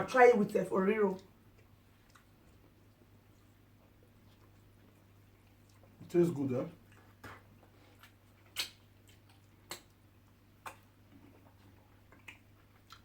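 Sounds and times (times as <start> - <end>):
mouth clicks and smacks chewing: 1.2 - 6.0, 6.8 - 13.0.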